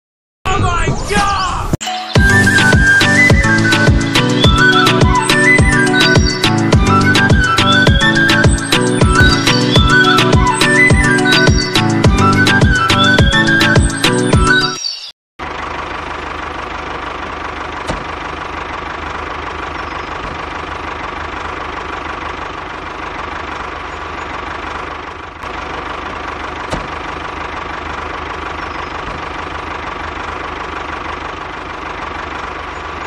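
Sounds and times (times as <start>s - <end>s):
small engine running steadily: 15.4s - 33.0s.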